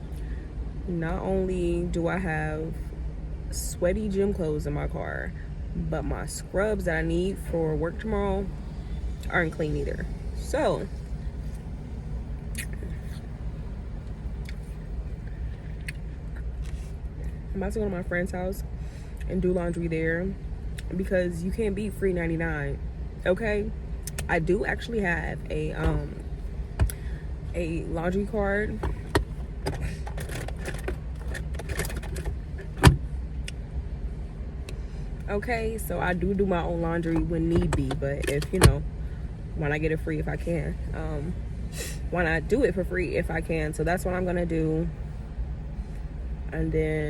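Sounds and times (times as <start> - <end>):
car engine running: 0.0 - 47.0
small clicks and rattles: 28.8 - 32.8.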